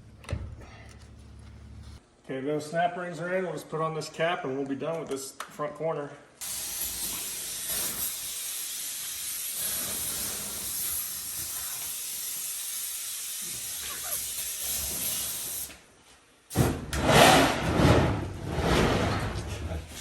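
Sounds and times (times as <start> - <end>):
steady hiss: 6.4 - 15.9.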